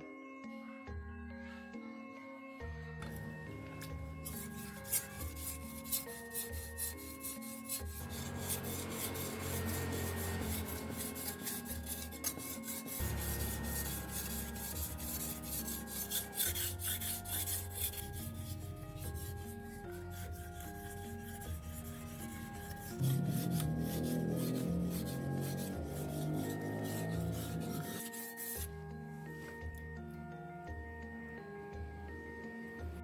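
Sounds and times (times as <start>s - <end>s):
plucked background music: 0.0s - 33.0s
file scraping sickle blade: 3.8s - 28.7s.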